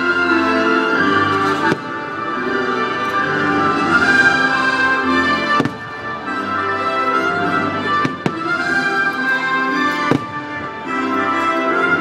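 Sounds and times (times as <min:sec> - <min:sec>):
orchestral show music: 0:00.0 - 0:12.0
fireworks bursting with bangs: 0:01.4 - 0:02.4, 0:03.4 - 0:12.0.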